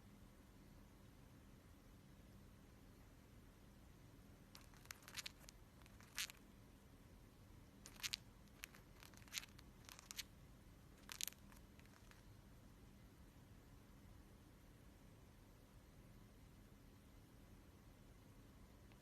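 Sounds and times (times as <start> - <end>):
scratchy crunches and scrapes: 4.6 - 6.4, 7.9 - 10.2, 11.0 - 12.2.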